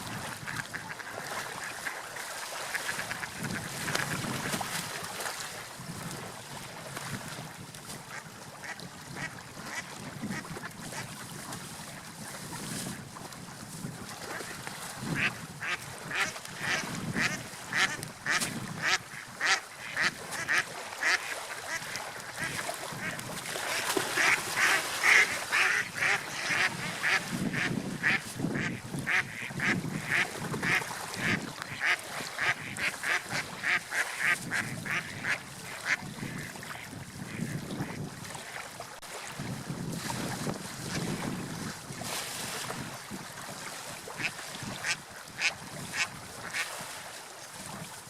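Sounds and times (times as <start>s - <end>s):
waterfowl calling: 0.4s - 2.0s, 15.2s - 37.6s.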